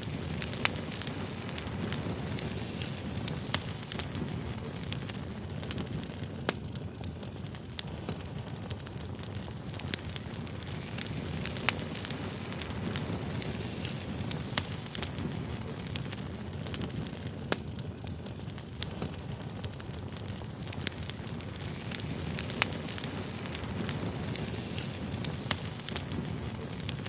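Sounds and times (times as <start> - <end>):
firewood crackling and popping: 0.0 - 27.0
low rumble of flame: 0.0 - 27.0.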